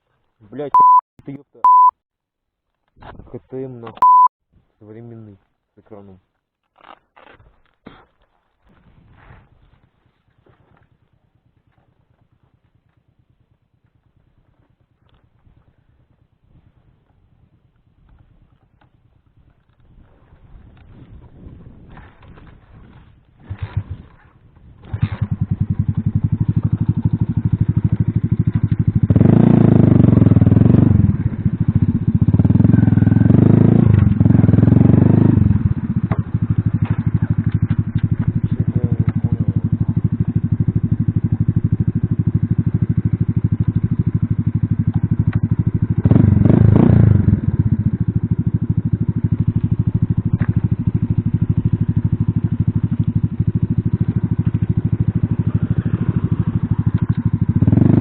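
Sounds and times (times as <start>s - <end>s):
moped engine revving: 24.8s - 58.0s.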